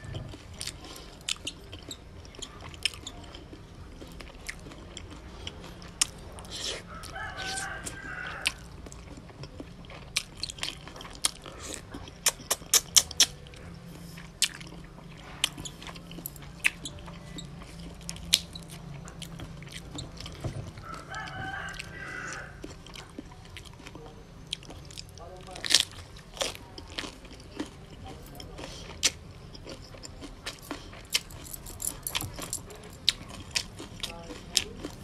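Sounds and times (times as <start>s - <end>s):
chewing and lip smacks: 0.0s - 35.0s
rooster crowing: 6.8s - 8.8s, 20.7s - 22.7s.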